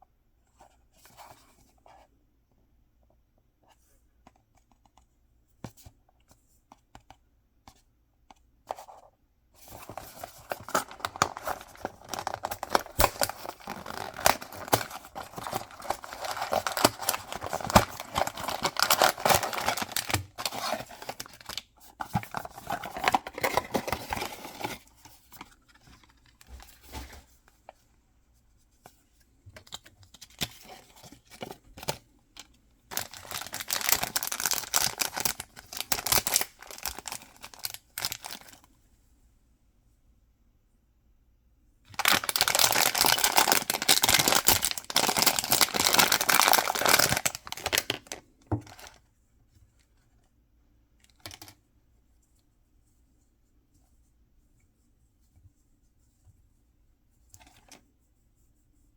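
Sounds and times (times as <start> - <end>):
packaging torn and crinkled: 10.5 - 21.6, 32.9 - 38.6, 41.9 - 48.9.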